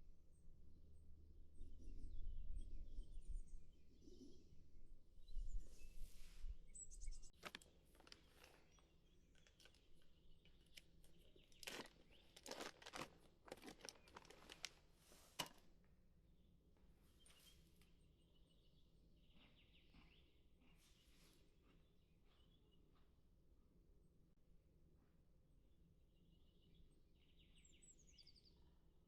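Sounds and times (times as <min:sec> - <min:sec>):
rustling and crinkling: 0:07.3 - 0:15.7.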